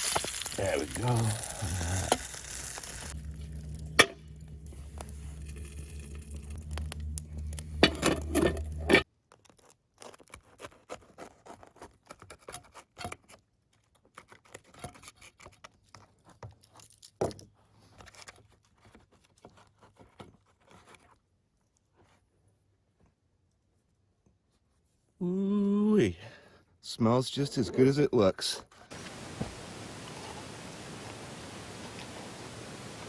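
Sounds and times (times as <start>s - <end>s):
low steady hum: 0.6s - 9.0s.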